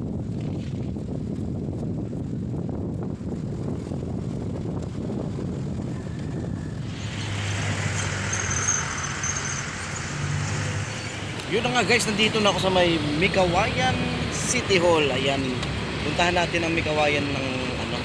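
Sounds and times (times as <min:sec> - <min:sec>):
vehicle engine hum: 0:00.0 - 0:18.0
wind rumbling on microphone: 0:00.0 - 0:18.0
vehicle tyre hiss: 0:05.4 - 0:14.3.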